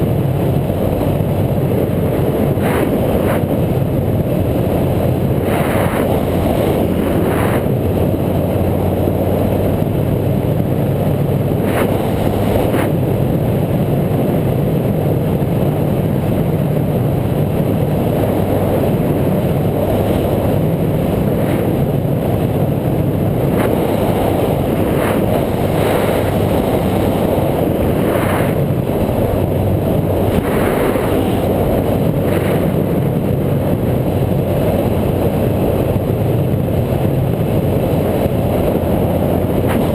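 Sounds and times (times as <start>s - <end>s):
bike engine and road noise: 0.0s - 39.9s
wind buffeting microphone: 0.0s - 39.9s.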